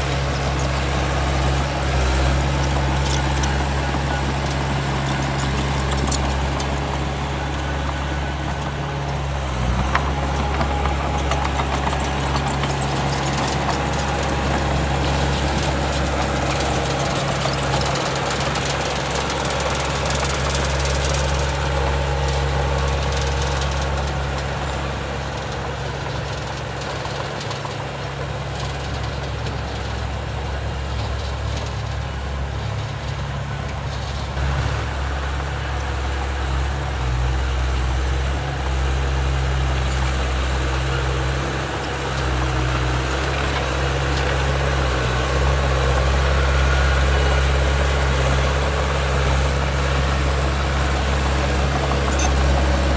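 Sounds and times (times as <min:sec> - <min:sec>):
light clicking and rattling: 0:00.0 - 0:24.8
heavy diesel engine running: 0:00.0 - 0:52.9.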